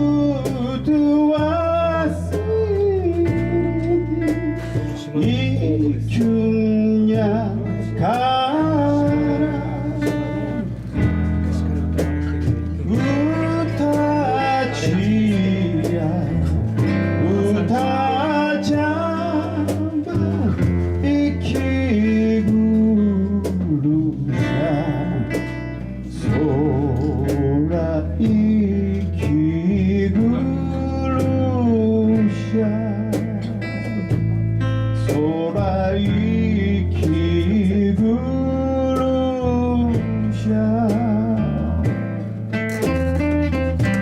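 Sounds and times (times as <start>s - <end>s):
bass: 0.0s - 44.0s
guitar: 0.0s - 44.0s
person singing with vibrato: 12.8s - 25.5s.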